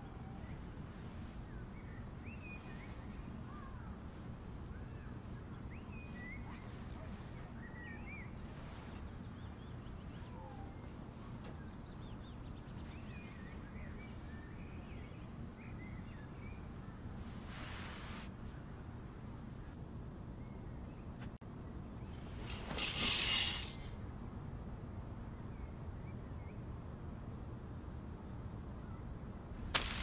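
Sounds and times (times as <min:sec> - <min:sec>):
small birds chirping: 0:00.0 - 0:17.1
rustle: 0:00.0 - 0:18.7, 0:22.0 - 0:24.0, 0:29.6 - 0:30.0.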